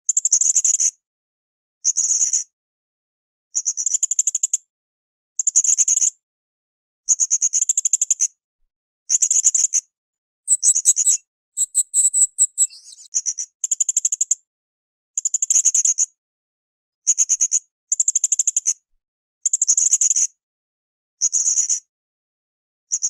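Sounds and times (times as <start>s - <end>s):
parrot calling in high bursts: 10.5s - 13.1s.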